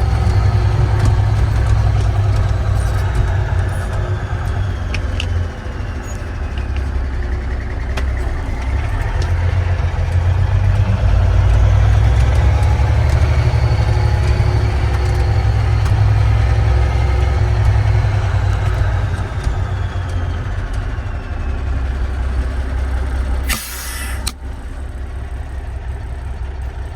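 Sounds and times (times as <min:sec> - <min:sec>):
diesel truck engine running: 0:00.0 - 0:26.9
air hissing: 0:23.4 - 0:24.4.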